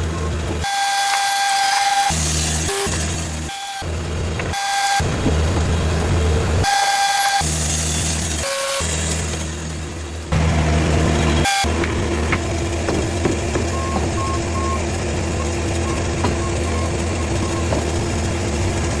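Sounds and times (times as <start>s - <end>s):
heavy engine running: 0.0s - 19.0s
short beeps: 13.7s - 14.8s, 15.4s - 17.8s.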